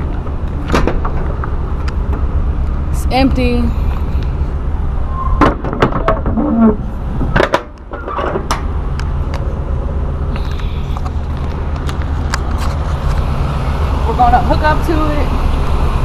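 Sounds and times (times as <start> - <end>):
diesel truck engine idling: 0.0 - 5.2, 8.5 - 16.0.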